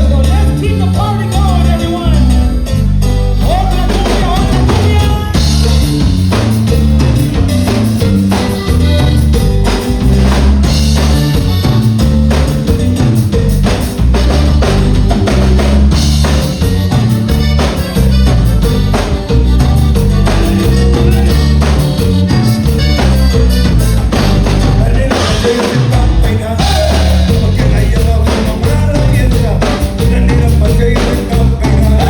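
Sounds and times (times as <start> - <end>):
person singing: 0.0 - 2.7, 3.4 - 5.8, 20.0 - 22.4, 23.8 - 32.0
live band playing: 0.0 - 32.0.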